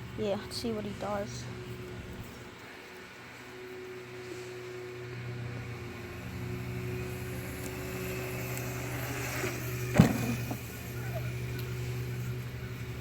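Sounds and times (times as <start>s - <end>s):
dirt bike motor humming: 5.3s - 13.0s.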